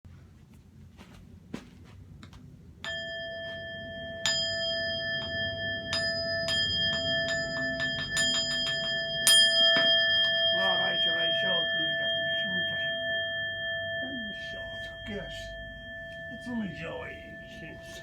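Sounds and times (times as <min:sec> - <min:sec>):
bowl bell ringing: 0:02.8 - 0:18.0.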